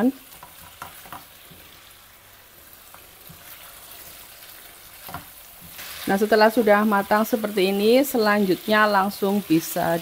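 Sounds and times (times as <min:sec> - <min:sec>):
chicken sizzling in a wok: 0:00.0 - 0:10.0
spatula scraping a wok: 0:02.7 - 0:06.3.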